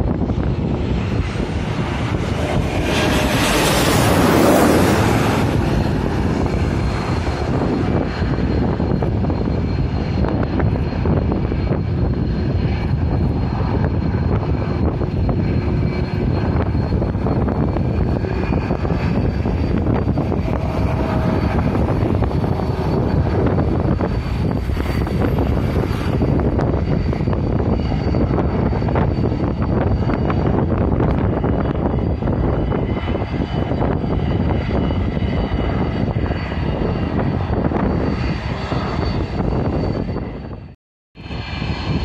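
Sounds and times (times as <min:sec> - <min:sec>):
jet engines running: 0:00.0 - 0:42.0.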